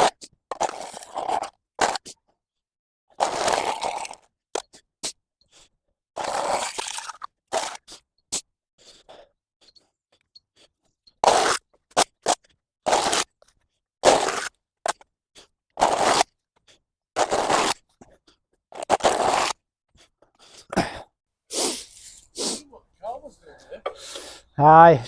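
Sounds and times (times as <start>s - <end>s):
spade scraping mud: 14.0s - 16.3s, 17.2s - 18.2s, 18.8s - 19.6s.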